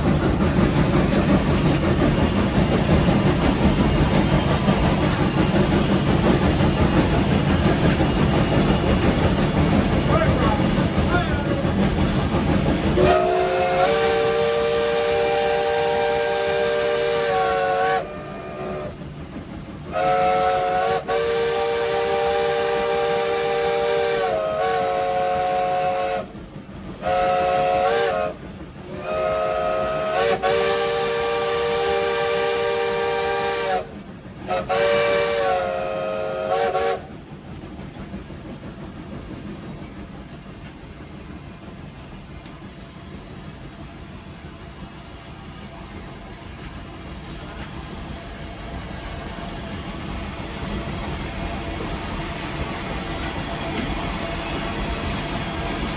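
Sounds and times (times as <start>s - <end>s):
steam hissing: 0.0s - 55.9s
steam chime whistle blasts: 13.0s - 18.9s, 19.9s - 26.3s, 27.0s - 33.9s.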